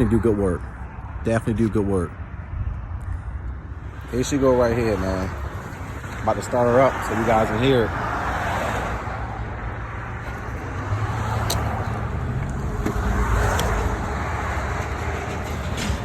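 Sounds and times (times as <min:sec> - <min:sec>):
sharp click: 0:11.4 - 0:11.9.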